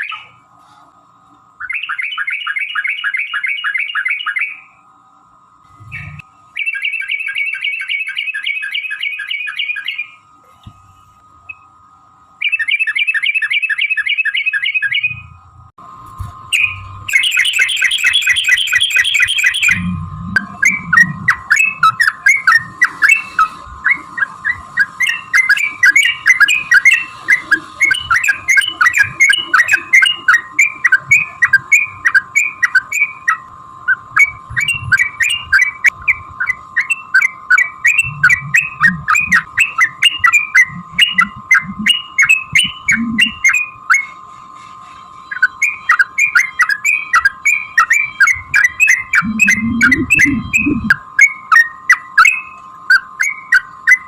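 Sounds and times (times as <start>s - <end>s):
steady high hum: 0.0s - 54.0s
bird singing chattering phrases: 16.6s - 33.1s, 33.9s - 44.1s, 45.3s - 51.0s.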